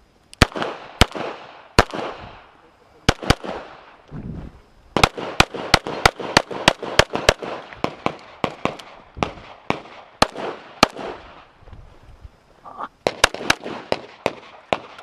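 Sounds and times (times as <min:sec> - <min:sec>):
rapid handgun shots: 0:00.4 - 0:02.5, 0:03.1 - 0:04.0, 0:05.0 - 0:11.5, 0:13.0 - 0:15.0.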